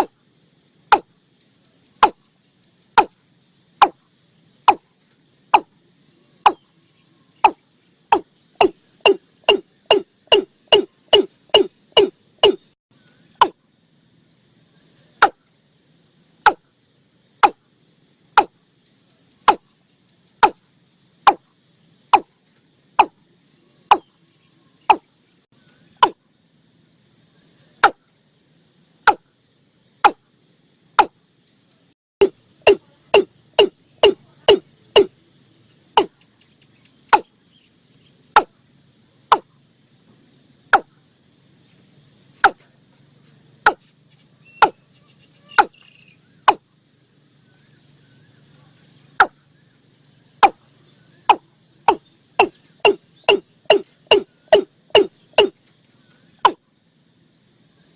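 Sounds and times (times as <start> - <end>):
insects trilling: 0.0 - 57.9
bird calling: 5.6 - 13.5, 43.7 - 46.6, 51.1 - 55.6.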